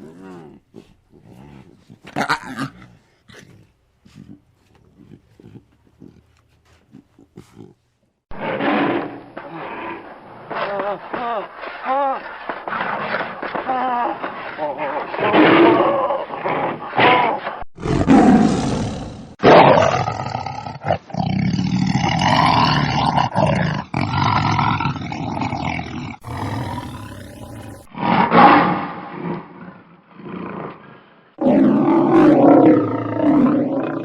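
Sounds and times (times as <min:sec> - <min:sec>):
lions roaring: 0:26.2 - 0:28.7, 0:31.4 - 0:34.0.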